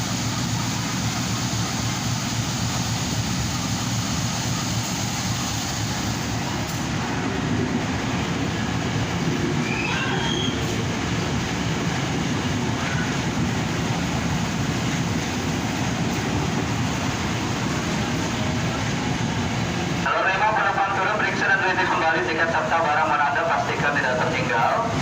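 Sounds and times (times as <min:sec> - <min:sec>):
train rumbling: 0:00.0 - 0:25.0
faint wheel squeals: 0:09.6 - 0:10.7.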